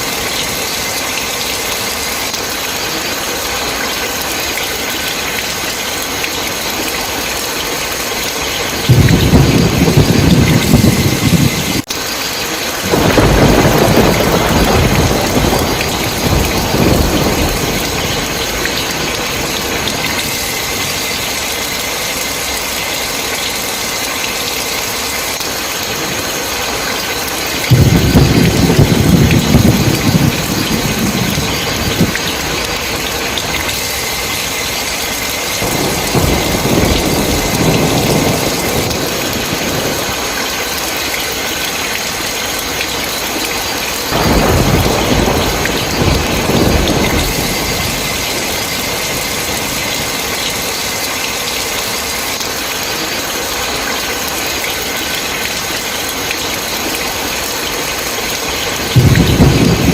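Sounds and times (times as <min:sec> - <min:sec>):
heavy rain falling: 0:00.0 - 0:59.9
low rolls of thunder: 0:08.7 - 0:11.8, 0:12.8 - 0:21.5, 0:27.6 - 0:34.9, 0:35.6 - 0:40.8, 0:44.1 - 0:50.6, 0:58.8 - 0:59.9.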